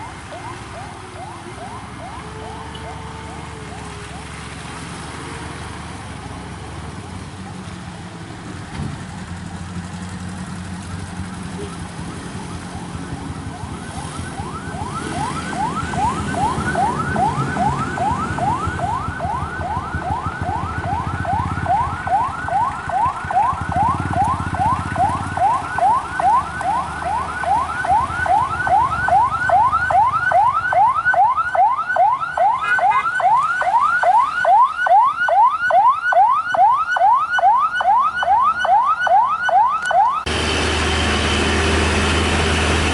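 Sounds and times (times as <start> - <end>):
electronic siren yelping: 0.0 - 4.4, 11.5 - 40.3
low engine rumble: 40.2 - 42.9.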